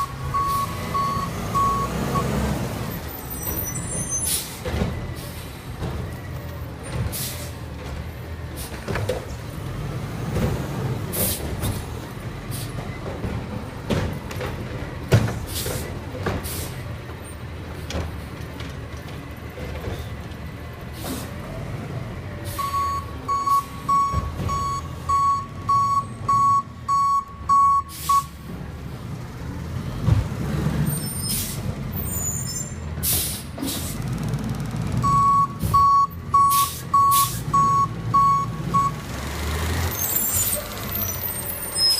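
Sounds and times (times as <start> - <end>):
backup alarm beeping: 0.0 - 2.2, 22.6 - 28.4, 35.0 - 39.0
air brake hisses: 21.0 - 21.4, 27.9 - 28.4, 33.0 - 34.0.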